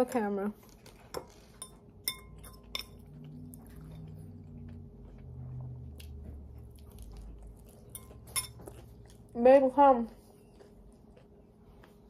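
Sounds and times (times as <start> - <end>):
metal spoon clinking on bowl: 1.6 - 3.1, 7.9 - 8.6.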